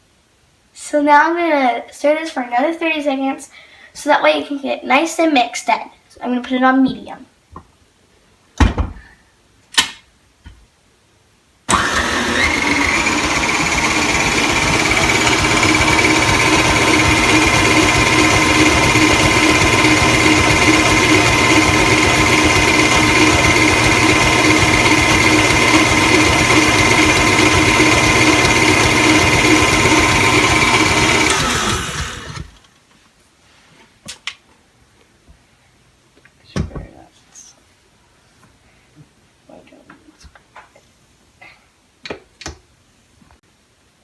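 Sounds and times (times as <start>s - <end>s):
electric mixer motor whining: 11.7s - 32.6s.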